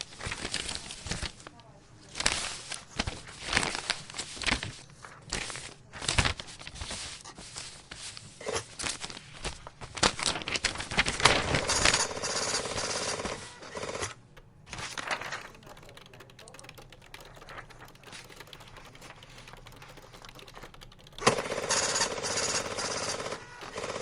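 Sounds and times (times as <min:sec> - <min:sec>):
keyboard typing fast: 0:14.4 - 0:24.0
steady buzzing: 0:14.4 - 0:24.0.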